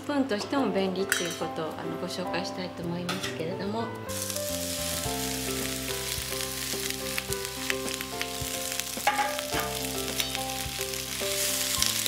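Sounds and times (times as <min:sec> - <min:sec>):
soft background music: 0:00.0 - 0:12.0
vegetables sizzling in a wok: 0:04.1 - 0:12.0
utensils knocking on pan: 0:09.0 - 0:10.3.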